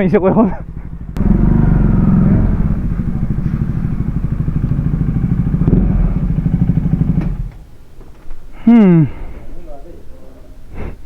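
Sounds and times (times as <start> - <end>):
motorcycle engine misfiring: 0.6 - 8.2.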